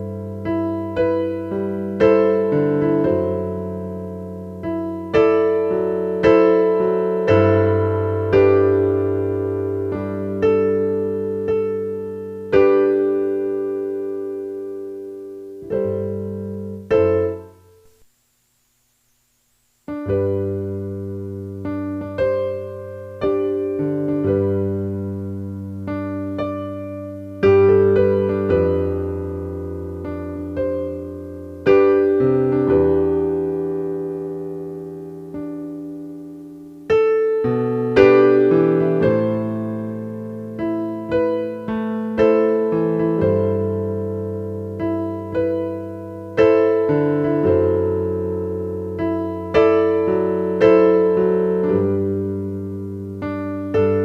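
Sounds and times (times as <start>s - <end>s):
slow piano chords: 0.0s - 18.1s, 19.9s - 54.0s.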